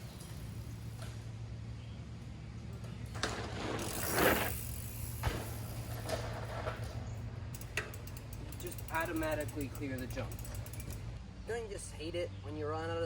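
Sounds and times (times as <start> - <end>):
bike landing knock: 3.1 - 8.0
bike hub ticking: 3.8 - 11.2.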